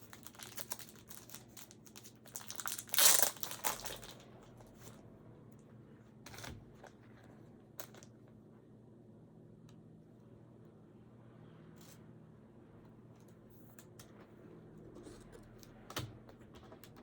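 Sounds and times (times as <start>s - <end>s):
plastic sleeve crinkling: 0.0s - 5.0s.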